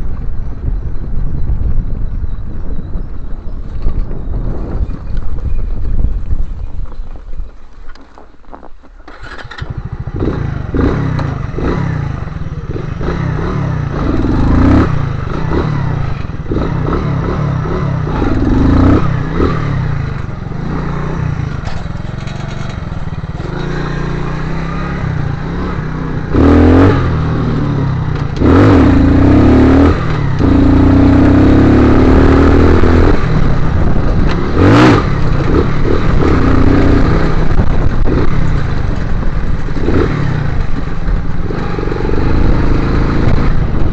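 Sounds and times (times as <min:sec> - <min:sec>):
motorcycle engine revving: 0:09.1 - 0:43.9.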